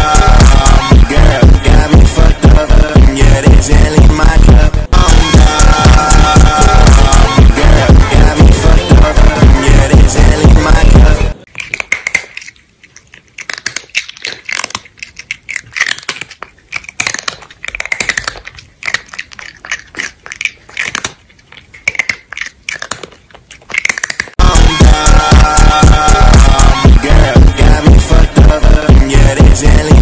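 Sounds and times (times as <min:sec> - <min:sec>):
dance music: 0:00.0 - 0:11.4, 0:24.4 - 0:30.0
crunchy chewing: 0:11.4 - 0:24.4.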